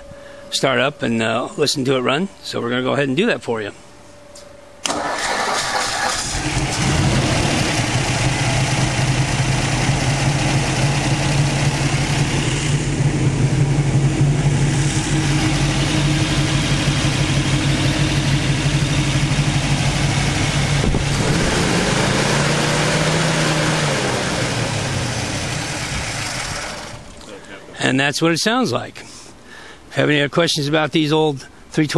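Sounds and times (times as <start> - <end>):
car engine idling: 4.8 - 27.6.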